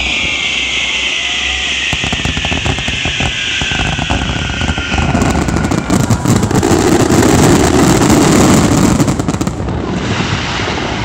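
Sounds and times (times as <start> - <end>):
fireworks crackling: 1.9 - 11.0
fireworks exploding: 1.9 - 11.0.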